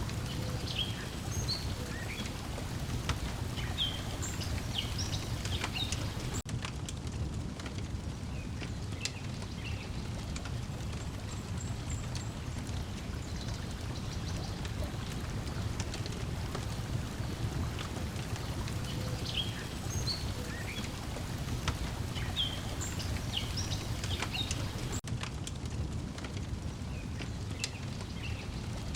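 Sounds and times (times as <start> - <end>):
bird chirps: 0.0 - 6.4, 18.7 - 25.0
water lapping at shore: 0.0 - 6.4, 8.6 - 25.0
wood fire crackling: 0.0 - 28.9.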